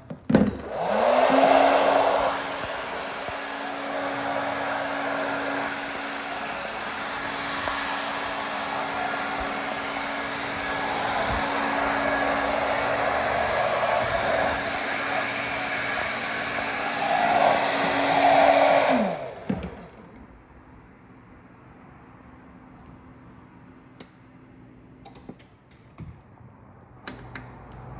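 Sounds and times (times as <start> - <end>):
electric fan humming: 0.6 - 20.1.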